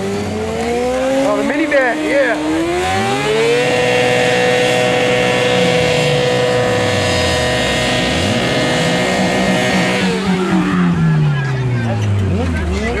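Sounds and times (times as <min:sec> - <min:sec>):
lower engine rising and falling: 0:00.0 - 0:13.0
motorcycle engine revving high: 0:00.0 - 0:13.0.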